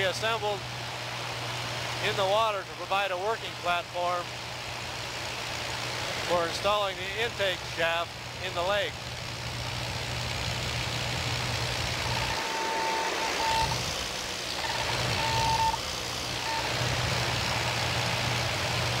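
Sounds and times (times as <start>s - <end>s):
engine drone: 0.0s - 19.0s
high beeping tone: 12.0s - 13.8s, 14.6s - 15.8s.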